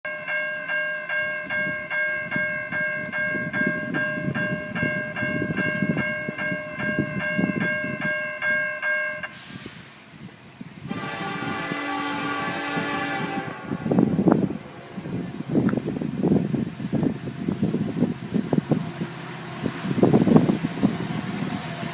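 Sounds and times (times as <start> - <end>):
train rumble: 0.1 - 21.9
locomotive air horn: 10.9 - 15.5.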